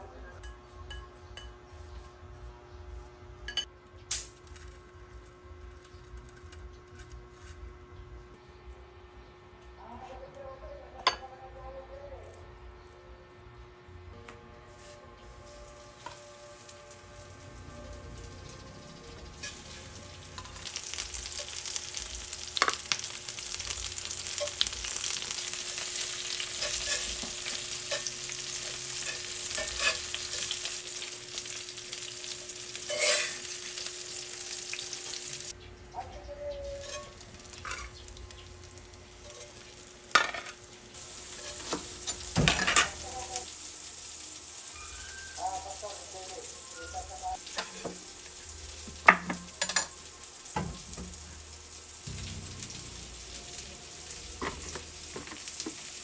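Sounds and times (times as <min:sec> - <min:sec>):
hot oil sizzling in a pan: 0:15.3 - 0:35.6, 0:36.7 - 0:56.0.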